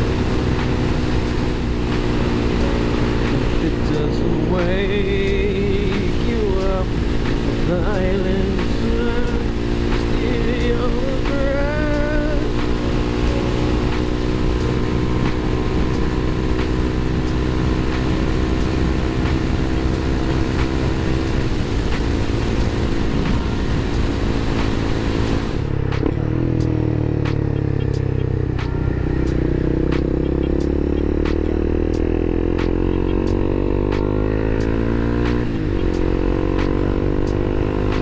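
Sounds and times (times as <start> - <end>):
wind hiss over microphone: 0.0 - 25.8
motorcycle engine running: 0.0 - 38.0.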